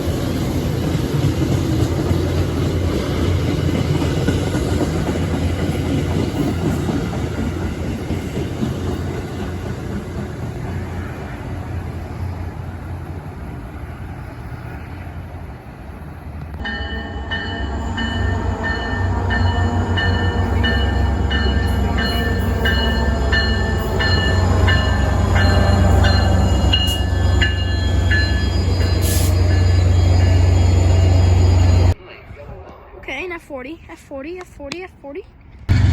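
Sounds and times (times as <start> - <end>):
train rumbling past: 0.0 - 34.3, 35.5 - 35.9
high steady squeal: 25.4 - 32.0.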